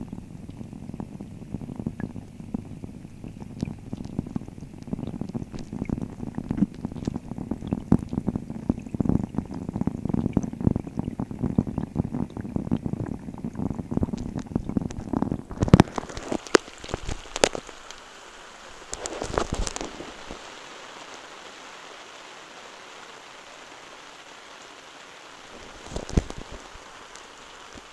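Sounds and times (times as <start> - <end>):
rain drops underwater: 0.0 - 27.9
rain hiss: 0.0 - 27.9.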